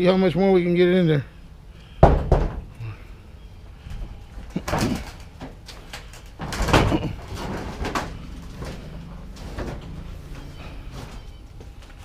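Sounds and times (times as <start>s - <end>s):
scrap items knocking and banging: 4.6s - 10.1s.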